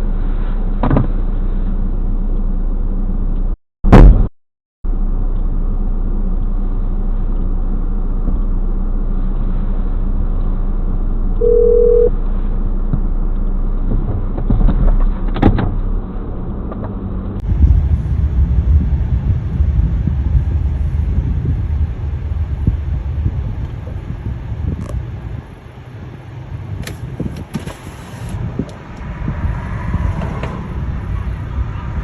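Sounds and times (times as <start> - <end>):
car engine and road noise: 0.0 - 3.6, 4.9 - 32.0
rough vehicle rumble: 0.0 - 4.3, 4.9 - 32.0
short single-tone beep: 11.4 - 12.1
wind on microphone: 17.4 - 25.6, 27.0 - 32.0.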